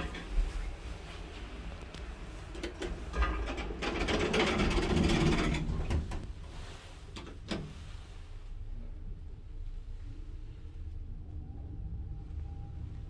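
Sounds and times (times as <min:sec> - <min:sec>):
elevator clattering and rumbling: 0:00.0 - 0:06.5.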